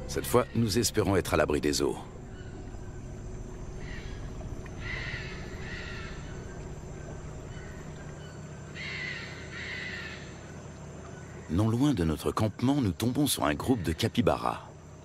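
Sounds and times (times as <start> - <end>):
bird calling: 0.0 - 12.5
steady low background hum: 0.0 - 15.0.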